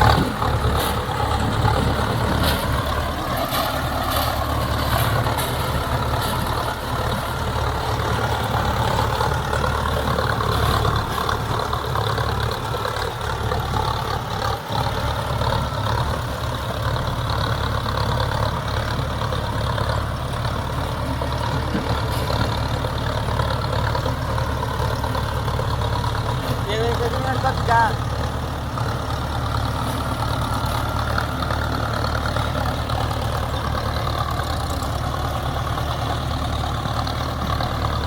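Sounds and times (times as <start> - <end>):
tractor diesel engine droning: 0.0 - 38.0.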